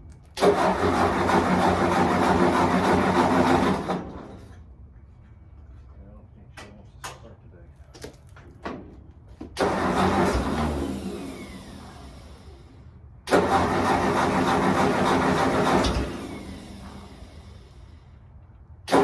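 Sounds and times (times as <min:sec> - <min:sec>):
tractor engine cranking: 0:00.3 - 0:04.6, 0:09.6 - 0:12.4, 0:13.3 - 0:17.9.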